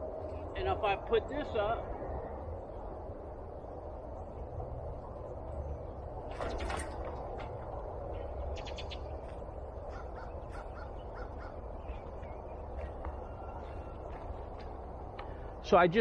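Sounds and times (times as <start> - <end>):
low background rumble: 0.0 - 16.0
bird calling: 8.1 - 15.5.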